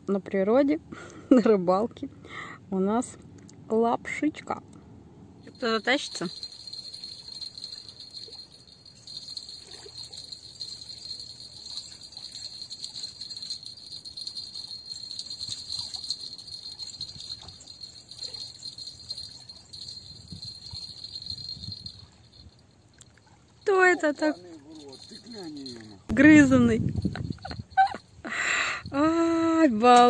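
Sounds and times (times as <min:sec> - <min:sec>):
faint light jingling: 0:05.4 - 0:30.0
insects chirring: 0:05.5 - 0:26.1.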